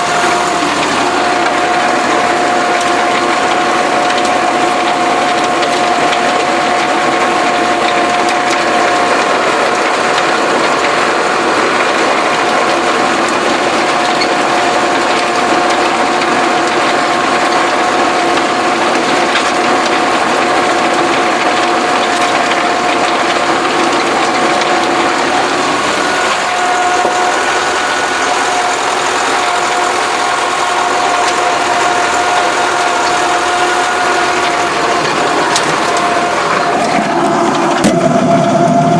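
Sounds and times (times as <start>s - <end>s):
high gear whine: 0.0s - 38.9s
tractor engine under load: 0.0s - 38.9s
implement noise: 21.4s - 38.9s.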